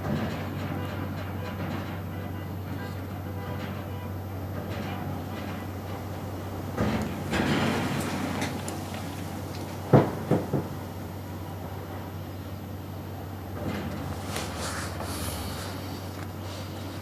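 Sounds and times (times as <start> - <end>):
rustling noise: 13.6 - 17.0.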